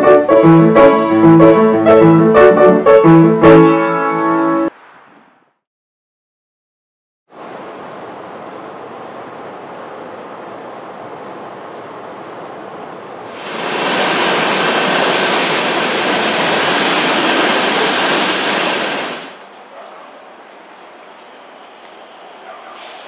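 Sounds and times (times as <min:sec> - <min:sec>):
freight train rolling past: 0:00.0 - 0:04.7, 0:07.4 - 0:23.0.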